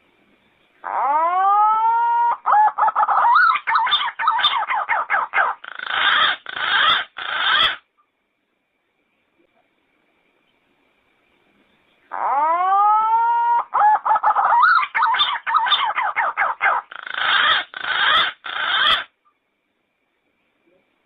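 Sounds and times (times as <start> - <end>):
pigeon calling: 0.8 - 7.8, 12.1 - 19.1.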